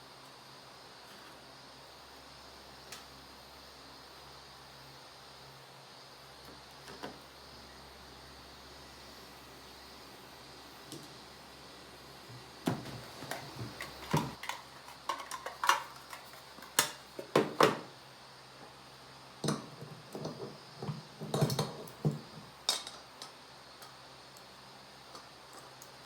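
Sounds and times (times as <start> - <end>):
containers and utensils clinking: 12.7 - 17.8.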